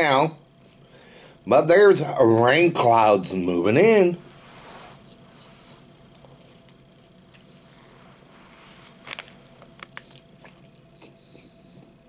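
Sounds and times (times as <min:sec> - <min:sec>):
person chewing food: 0:09.0 - 0:12.0
wet mouth clicks and smacks: 0:09.7 - 0:11.1.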